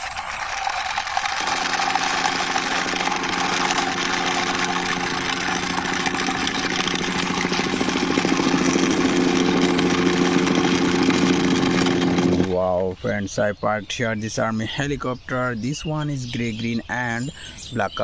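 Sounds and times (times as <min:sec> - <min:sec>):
toy friction gear whirring: 0:00.0 - 0:12.6.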